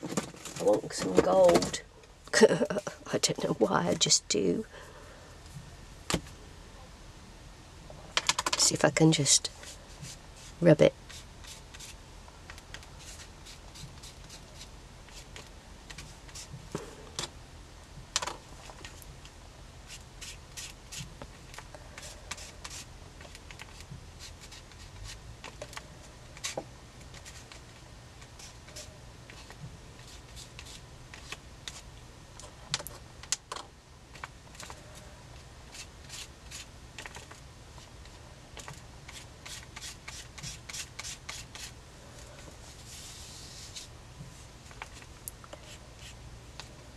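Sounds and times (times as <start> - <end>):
light scratching on paper: 21.9 - 25.2, 26.4 - 31.8, 39.1 - 46.2.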